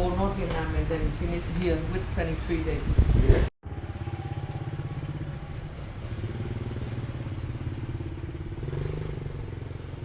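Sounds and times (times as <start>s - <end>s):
motorcycle engine idling: 3.6s - 10.0s.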